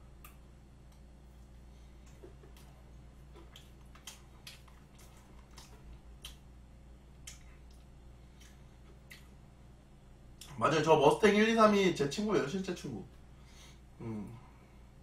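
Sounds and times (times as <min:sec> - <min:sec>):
steady low hum: 0:00.0 - 0:15.0
mouth chewing wet clicks: 0:02.0 - 0:09.5.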